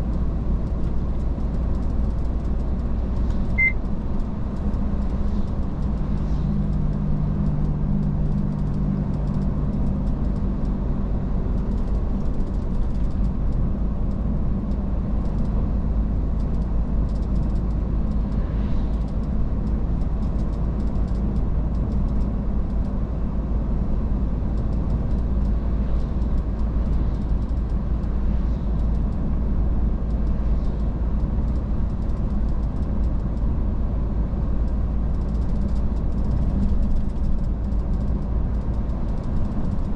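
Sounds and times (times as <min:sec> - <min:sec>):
truck engine rumble: 0:00.0 - 0:39.9.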